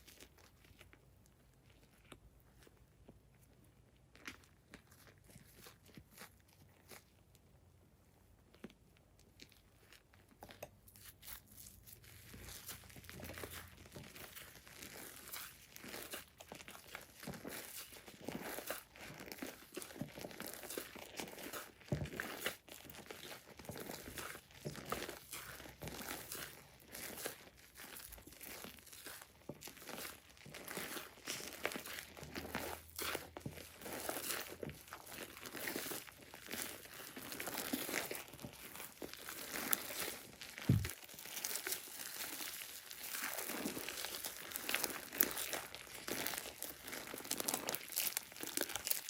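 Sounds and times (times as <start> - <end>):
slime squished by hand: 8.4 - 49.0
low thump: 40.7 - 40.9.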